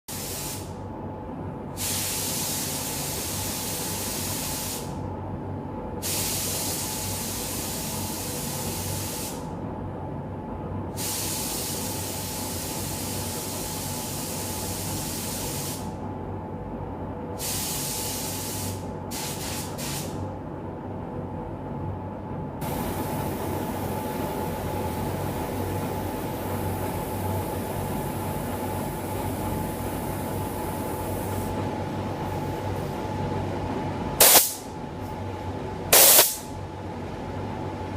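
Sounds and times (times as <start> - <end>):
steady machine hum: 0.1 - 37.9
paint spray gun spraying: 34.2 - 34.6, 36.0 - 36.4.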